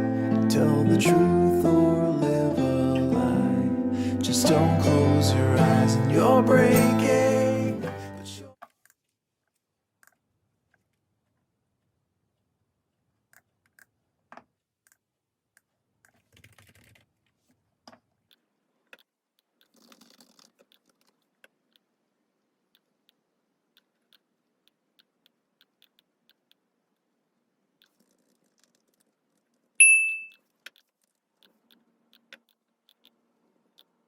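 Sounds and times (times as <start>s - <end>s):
faint tapping and clicking: 13.3s - 34.0s.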